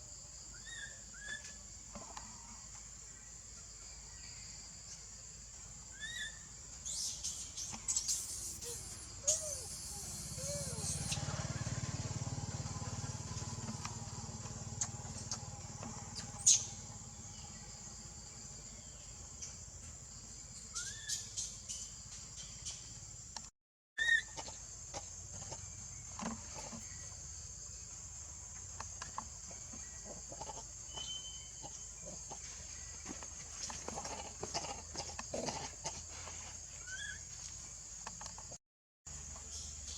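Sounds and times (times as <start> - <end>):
steady high-pitched hiss: 0.0 - 11.2
short animal chirps: 6.9 - 11.2.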